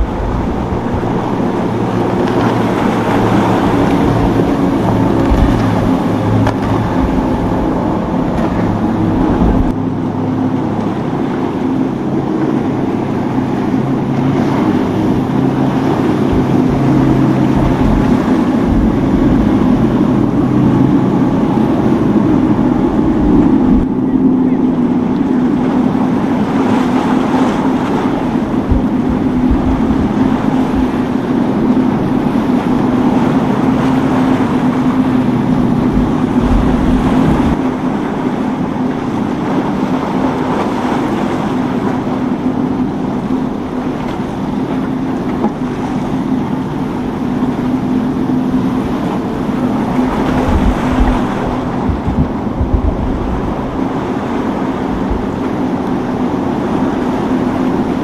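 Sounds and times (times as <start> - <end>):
motorboat engines droning: 0.0 - 58.0
wind gusting on microphone: 0.0 - 58.0.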